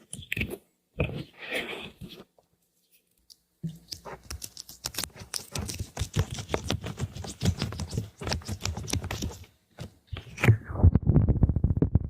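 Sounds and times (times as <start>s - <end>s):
quick clicks and scratches: 3.7s - 12.0s.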